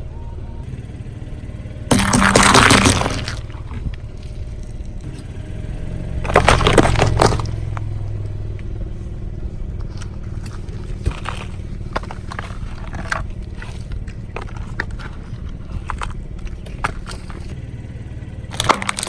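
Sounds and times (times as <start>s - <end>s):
car engine running: 0.6s - 19.0s
car tyre crushing objects: 1.9s - 7.9s, 9.8s - 19.0s.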